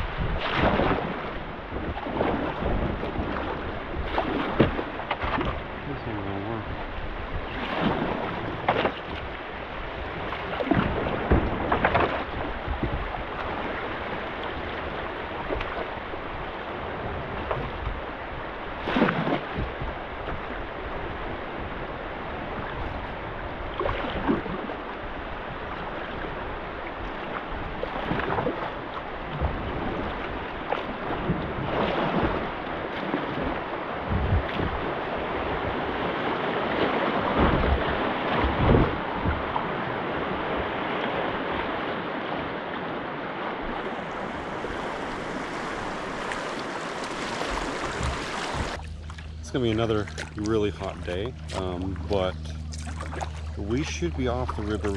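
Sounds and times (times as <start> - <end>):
wind on microphone: 0.0 - 48.8
paddle strokes splashing water: 0.0 - 54.9
moving water hiss: 43.8 - 48.8.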